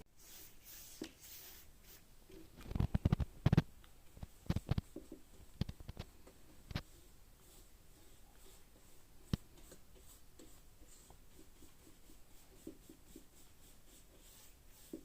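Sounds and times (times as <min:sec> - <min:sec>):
paintbrush scratchy strokes: 0:00.2 - 0:02.1, 0:06.7 - 0:15.0.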